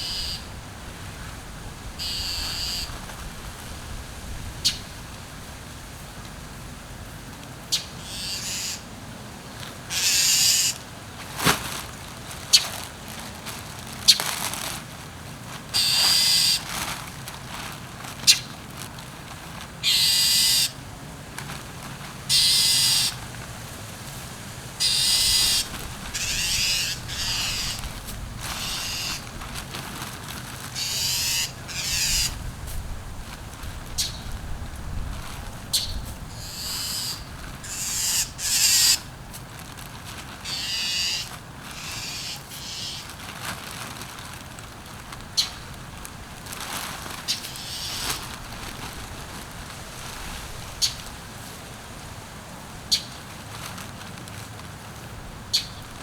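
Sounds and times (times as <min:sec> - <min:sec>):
mulch rustling scrapes: 0:11.1 - 0:19.8, 0:25.4 - 0:31.0, 0:39.0 - 0:40.6, 0:41.2 - 0:56.0.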